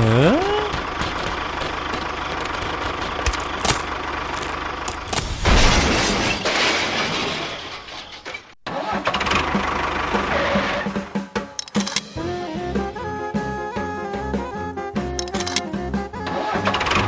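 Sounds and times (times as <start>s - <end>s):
small engine running: 0.0s - 5.2s.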